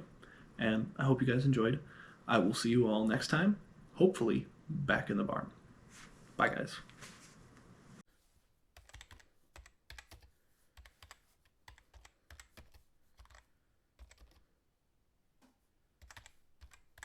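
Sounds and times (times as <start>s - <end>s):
faint irregular clicking and tapping: 8.8s - 14.4s, 15.4s - 17.0s.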